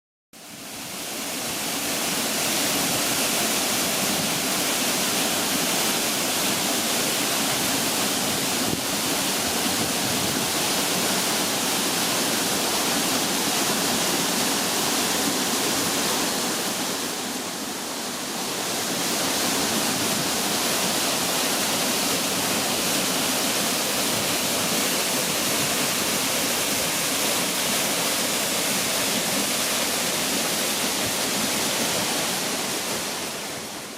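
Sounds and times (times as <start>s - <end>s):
waterfall pouring: 0.8s - 33.4s.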